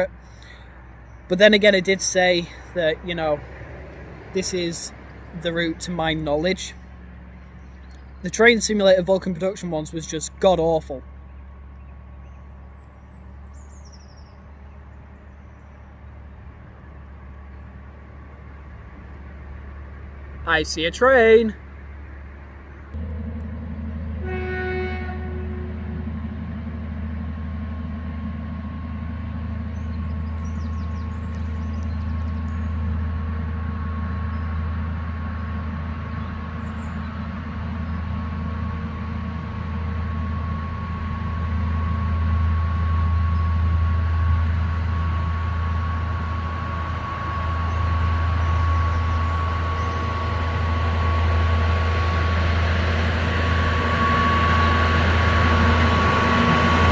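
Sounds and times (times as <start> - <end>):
locomotive engine drone: 0.0 - 56.9
high whine: 14.4 - 56.9
locomotive horn toot: 24.1 - 26.2, 45.0 - 56.9.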